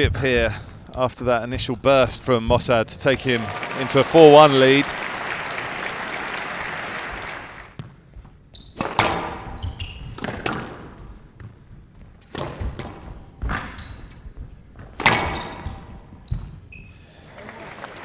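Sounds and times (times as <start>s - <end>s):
applause: 3.2s - 7.8s, 17.2s - 18.0s
shoes squeaking on court floor: 6.9s - 17.2s
squash ball hitting rackets: 8.8s - 16.5s
ball smacking court walls: 8.8s - 16.6s.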